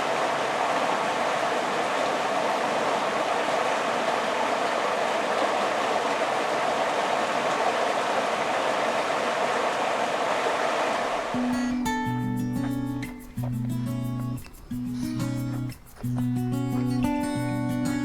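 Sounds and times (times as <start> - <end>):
creek water rushing over fall: 0.0 - 18.0
acoustic guitar music: 11.2 - 18.0.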